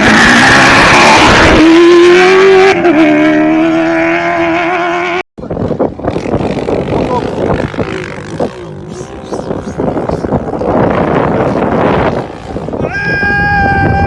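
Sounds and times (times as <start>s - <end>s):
rally car engine at high revs: 0.0s - 5.2s.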